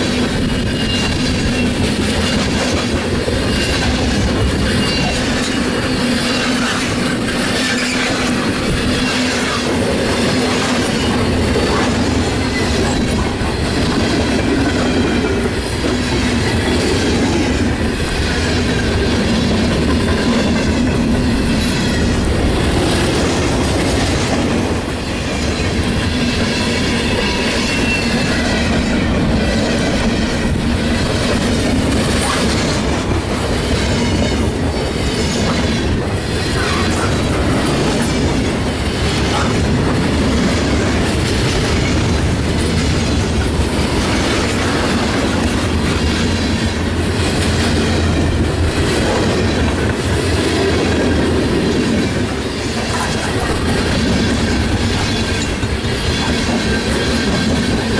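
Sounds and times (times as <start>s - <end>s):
train wheels clicking over rail joints: 0.0s - 57.9s
wheels squealing on rail: 0.0s - 57.9s.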